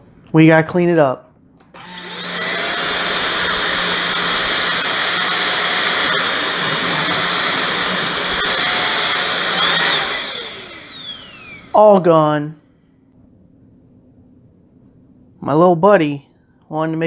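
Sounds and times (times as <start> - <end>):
stick vacuum motor whining: 1.6 - 12.3.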